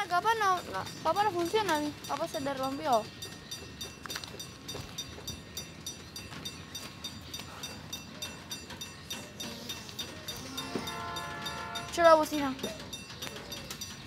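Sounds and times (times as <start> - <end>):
light ticks from wheels: 0.0 - 14.0
train wagon rumbling: 0.0 - 14.0
high wheel squeals: 7.5 - 14.0.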